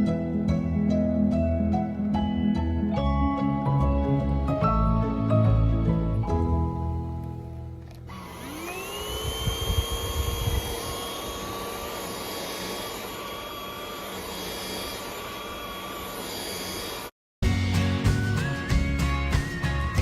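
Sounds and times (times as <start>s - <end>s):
vacuum cleaner motor whine: 7.9s - 17.1s.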